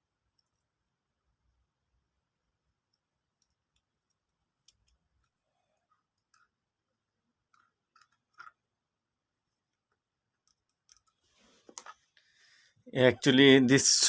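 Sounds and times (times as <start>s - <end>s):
faint clicks of small parts: 0.2s - 0.8s, 2.8s - 8.7s, 9.4s - 12.4s.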